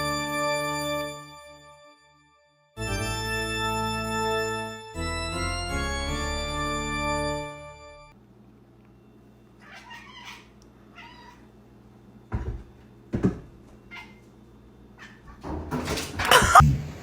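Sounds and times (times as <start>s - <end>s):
organ music: 0.0s - 2.2s, 2.8s - 8.2s
cat meowing: 9.6s - 11.5s.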